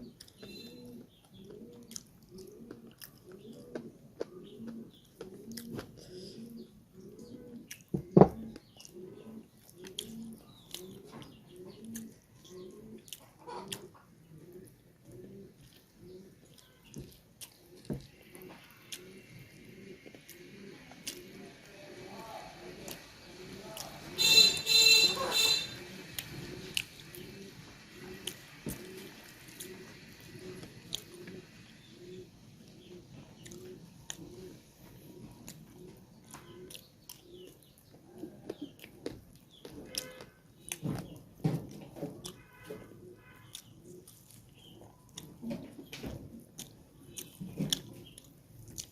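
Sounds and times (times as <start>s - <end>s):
pigeon cooing: 0.0s - 39.1s
eating clicks and smacks: 1.3s - 6.1s, 7.6s - 9.0s, 9.6s - 14.0s, 15.6s - 18.2s, 21.0s - 21.4s, 33.4s - 34.4s, 35.4s - 41.2s, 43.4s - 48.9s.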